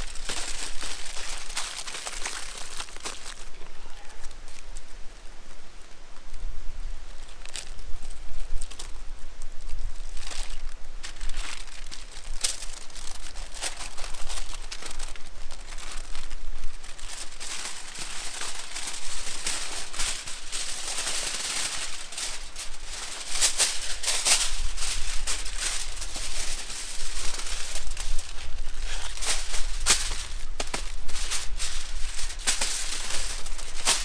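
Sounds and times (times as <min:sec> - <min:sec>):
campfire crackling and hissing: 0:00.0 - 0:34.0
sharp fire pops and snaps: 0:16.9 - 0:34.0.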